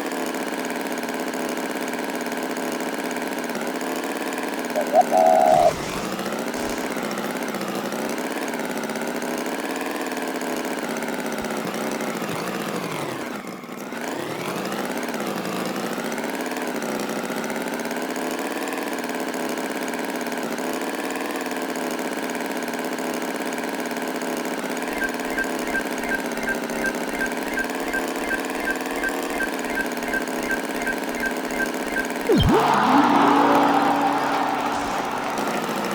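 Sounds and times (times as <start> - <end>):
engine running: 24.5 - 35.9
regular clicking: 24.9 - 32.4.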